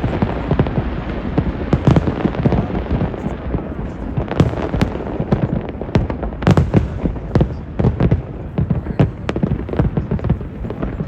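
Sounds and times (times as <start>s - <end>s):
fireworks bursting: 0.0s - 11.0s
rumble of explosions: 0.0s - 11.0s.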